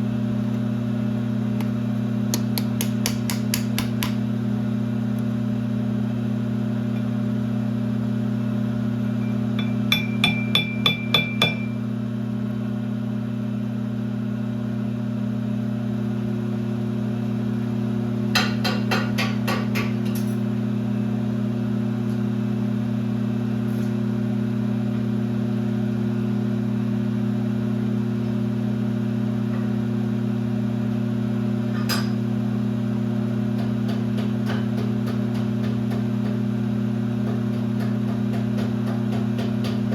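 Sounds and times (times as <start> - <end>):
workshop machine hum: 0.0 - 39.9
hammer tapping on metal: 2.3 - 4.2, 9.2 - 11.8.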